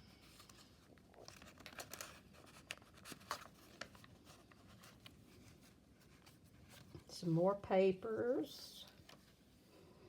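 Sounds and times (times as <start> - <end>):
paper pages rustling: 0.0 - 7.1.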